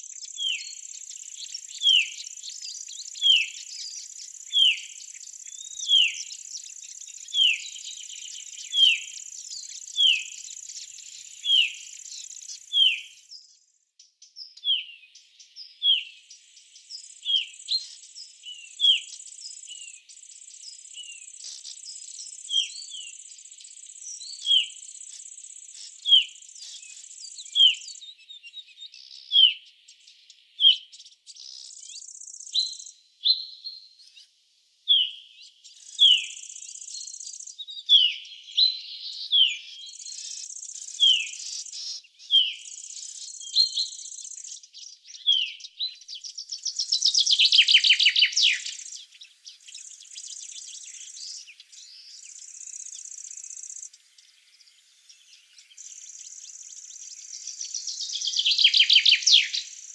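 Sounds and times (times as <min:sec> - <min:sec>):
small bird chirping: 0:00.0 - 0:59.9.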